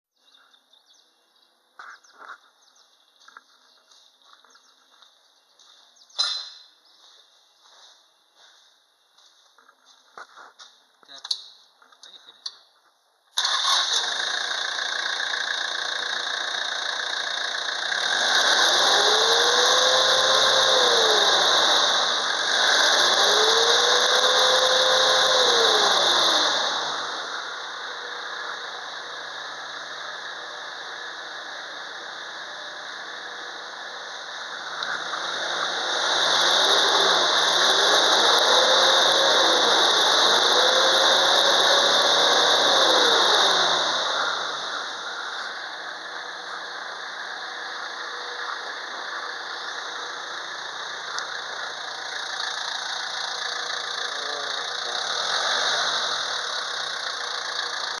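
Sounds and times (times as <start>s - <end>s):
diesel engine idling and revving: 13.4s - 58.0s
high whine: 15.1s - 58.0s.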